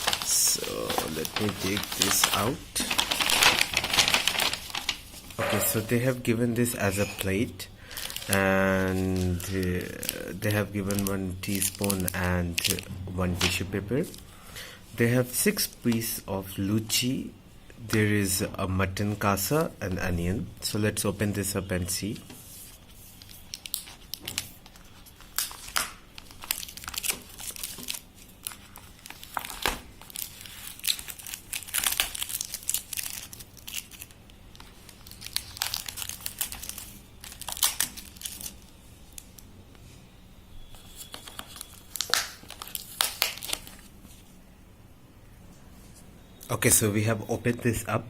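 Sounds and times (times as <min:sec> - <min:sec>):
food packaging crinkling and tearing: 0:00.0 - 0:06.2, 0:07.8 - 0:14.2, 0:23.0 - 0:39.4, 0:40.6 - 0:44.2.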